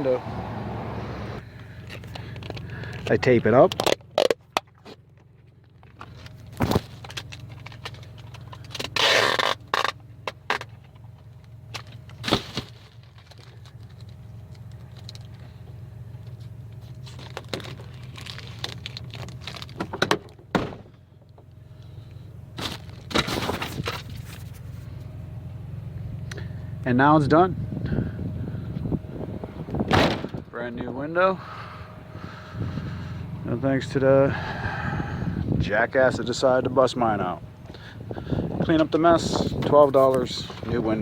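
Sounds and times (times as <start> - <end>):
low steady hum: 0.0 - 41.0
tape crackling on plastic: 5.6 - 15.4, 16.3 - 20.0
packing tape pulled off roll: 6.6 - 10.7, 17.0 - 20.0.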